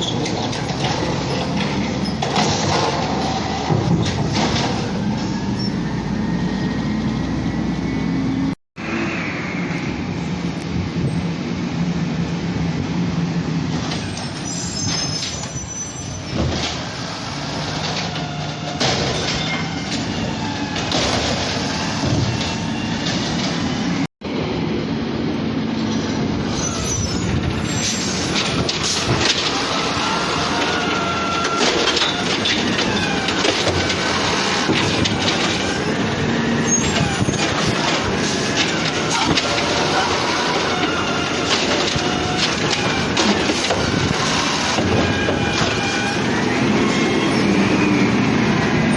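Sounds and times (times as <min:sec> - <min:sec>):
garbage truck diesel engine running: 0:16.3 - 0:48.9
high squeals and whines: 0:26.3 - 0:48.9.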